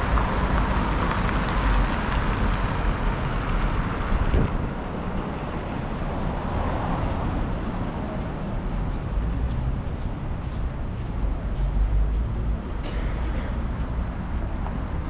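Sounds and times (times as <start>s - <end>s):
street traffic: 0.0s - 15.0s
wind buffeting microphone: 3.2s - 5.2s.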